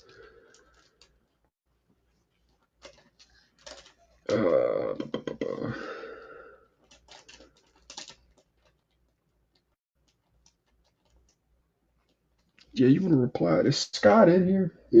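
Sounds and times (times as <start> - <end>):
low voiced sound: 4.3 - 6.2.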